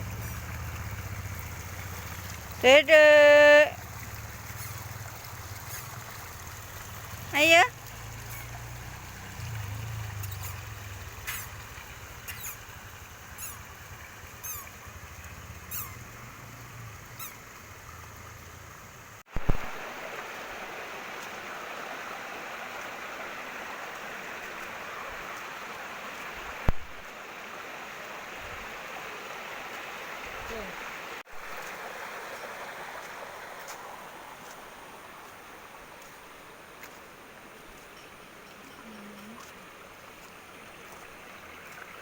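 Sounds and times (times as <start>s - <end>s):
rushing water: 0.0s - 42.0s.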